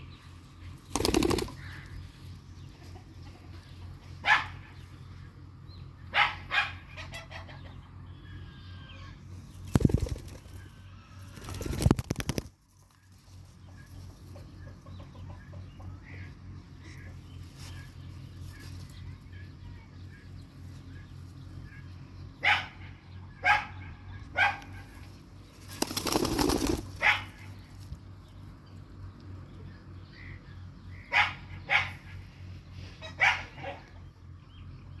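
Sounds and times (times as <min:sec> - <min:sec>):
wing flapping: 0:00.8 - 0:01.9, 0:09.6 - 0:10.6, 0:11.2 - 0:12.8, 0:25.6 - 0:27.2.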